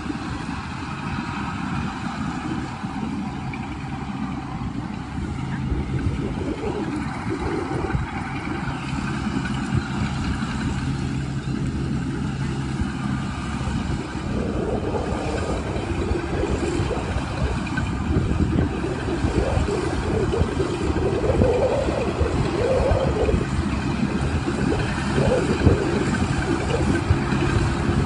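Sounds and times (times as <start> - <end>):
combine harvester engine running: 0.0 - 28.0.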